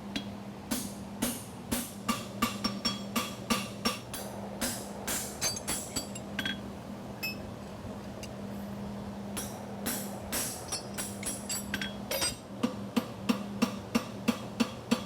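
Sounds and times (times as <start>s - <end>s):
hammer ringing on horseshoe: 7.2s - 7.4s.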